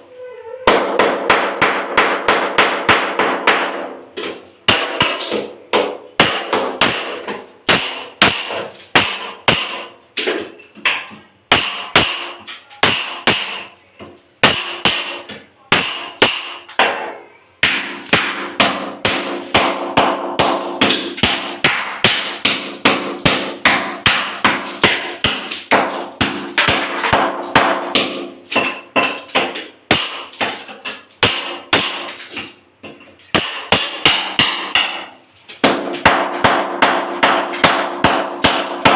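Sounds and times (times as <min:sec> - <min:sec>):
hammer breaking ceramic tiles: 0:00.7 - 0:38.9.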